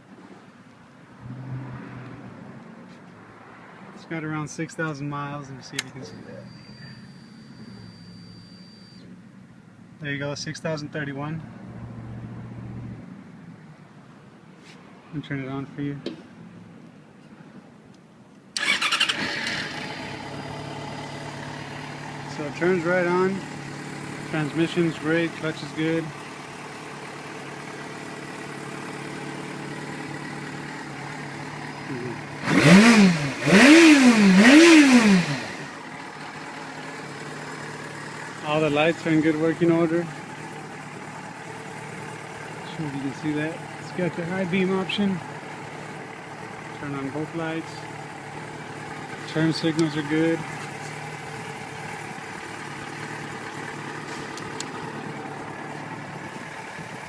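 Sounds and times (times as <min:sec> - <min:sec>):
engine revving: 0:18.6 - 0:26.1, 0:31.6 - 0:35.9, 0:46.8 - 0:55.2
motorcycle engine idling: 0:18.6 - 0:57.0.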